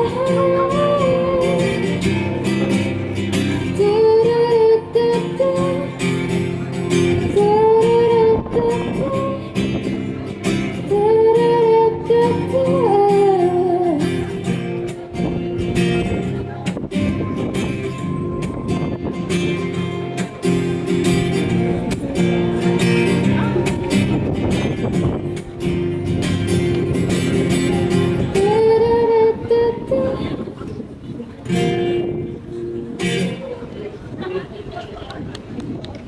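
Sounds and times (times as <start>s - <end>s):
woman singing: 0.0s - 2.2s, 3.7s - 6.2s, 7.3s - 9.7s, 10.8s - 14.1s, 27.8s - 30.5s
strummed acoustic guitar: 0.0s - 34.0s.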